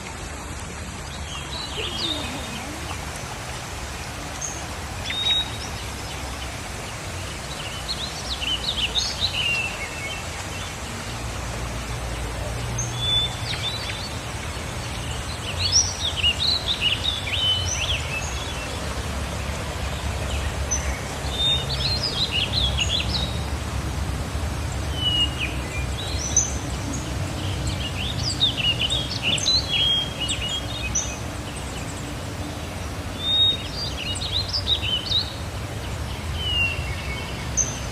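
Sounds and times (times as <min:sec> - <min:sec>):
small birds chirping: 0:01.0 - 0:23.6.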